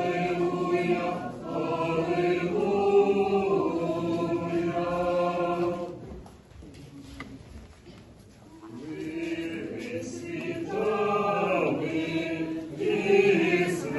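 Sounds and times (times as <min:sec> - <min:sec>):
choir singing a cappella chant: 0:00.0 - 0:06.1, 0:08.8 - 0:13.9.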